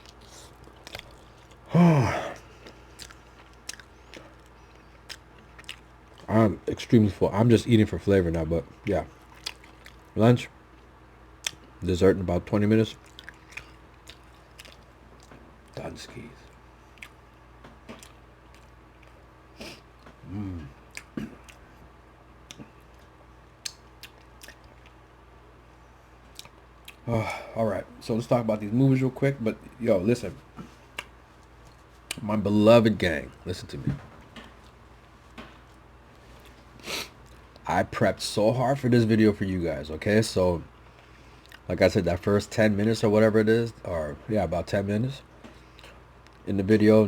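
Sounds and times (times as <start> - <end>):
person chewing: 0.0 - 6.3, 9.2 - 10.1, 13.0 - 15.8, 16.5 - 25.0, 26.3 - 27.0, 30.9 - 32.2, 41.3 - 41.7
person humming: 1.7 - 2.4, 20.2 - 20.8
person sighing: 1.7 - 2.5, 20.2 - 20.8, 27.1 - 27.6.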